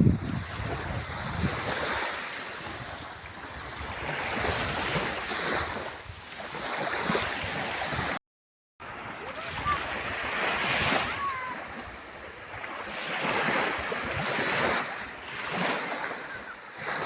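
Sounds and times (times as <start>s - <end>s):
wind rumbling on microphone: 0.0s - 6.3s
sea waves washing ashore: 0.0s - 8.2s, 8.8s - 17.0s.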